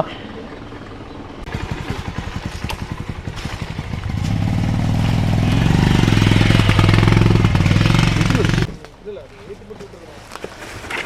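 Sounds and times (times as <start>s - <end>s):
motorcycle engine starting and running: 0.3s - 8.9s.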